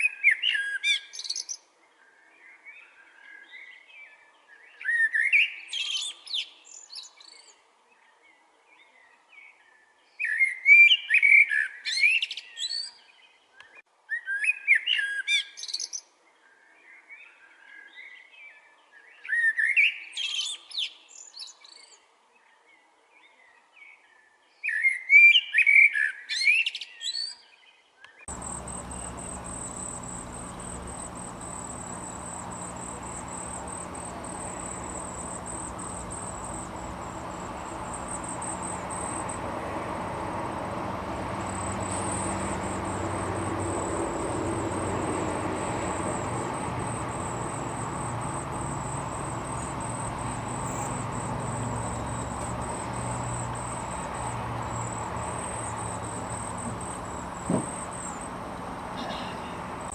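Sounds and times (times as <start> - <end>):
insect chorus trilling: 28.3 - 59.9
songbird warbling: 28.3 - 59.9.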